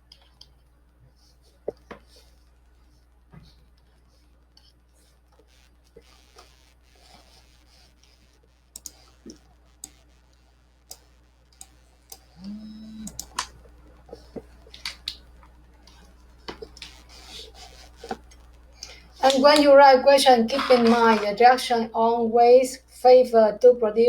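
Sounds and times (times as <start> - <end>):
person humming: 12.4 - 13.3.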